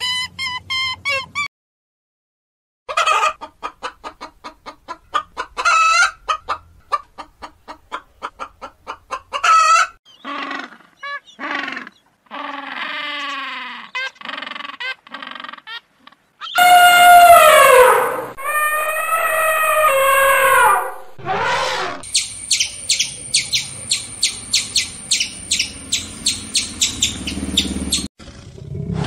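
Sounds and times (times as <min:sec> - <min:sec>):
hens clucking: 0:02.9 - 0:10.8.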